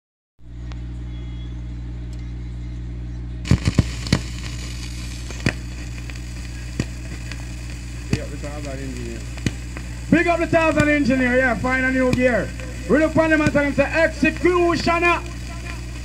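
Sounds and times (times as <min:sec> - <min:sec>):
steady low hum: 0:00.4 - 0:16.0
record crackle and hiss: 0:03.4 - 0:16.0
record pops: 0:03.4 - 0:16.0.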